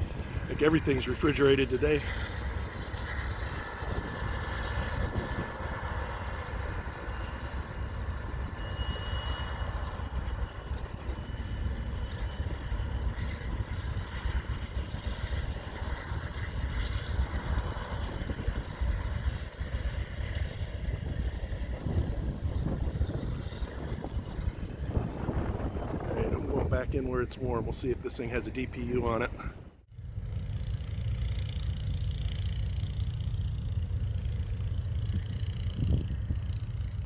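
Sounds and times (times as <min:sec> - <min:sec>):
high wheel squeal: 0:06.5 - 0:11.6.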